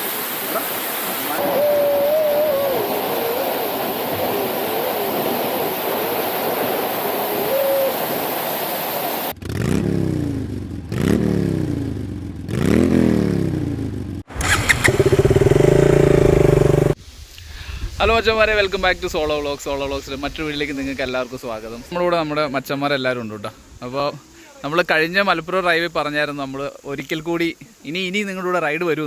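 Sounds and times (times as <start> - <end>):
rushing waterfall: 0.0 - 9.3
motorcycle engine revving: 9.3 - 17.0.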